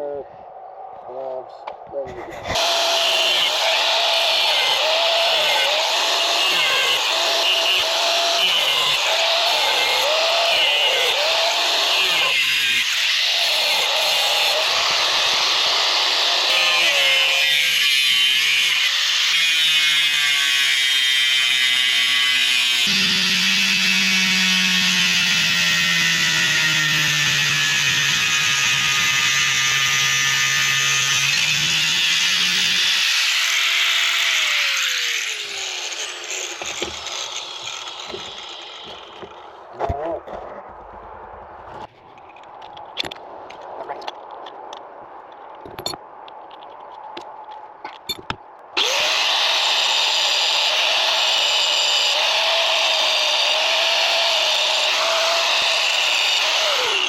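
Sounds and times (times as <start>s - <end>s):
angle grinder cutting metal: 2.2s - 39.5s, 48.8s - 57.0s.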